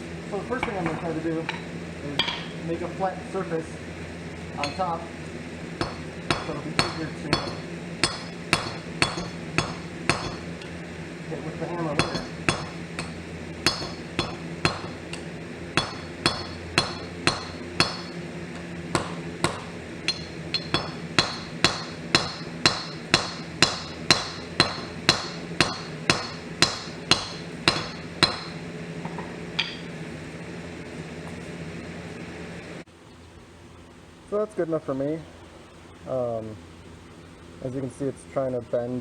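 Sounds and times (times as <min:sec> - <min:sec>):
steady hum: 0:00.0 - 0:39.0
hammer striking steel on anvil: 0:00.6 - 0:02.6, 0:04.6 - 0:04.9, 0:05.8 - 0:10.7, 0:11.8 - 0:18.2, 0:18.9 - 0:29.9.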